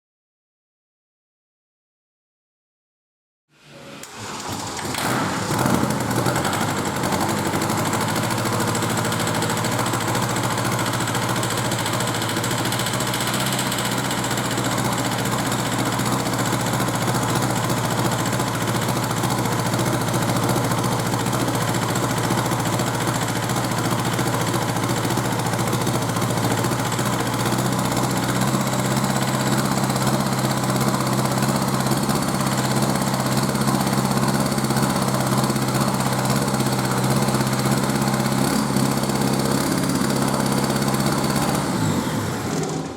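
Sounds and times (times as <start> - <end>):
diesel engine idling: 5.1 - 42.9.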